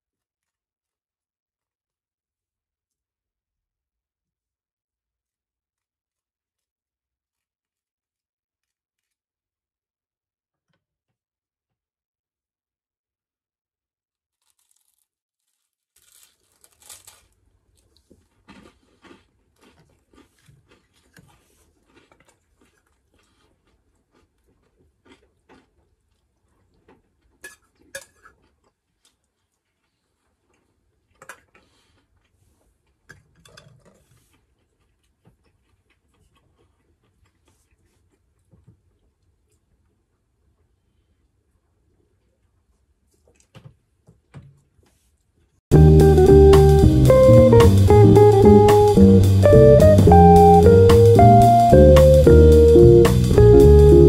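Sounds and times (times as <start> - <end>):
chewing and crunching bread: 0.1 - 1.8, 5.2 - 9.2, 14.3 - 45.6.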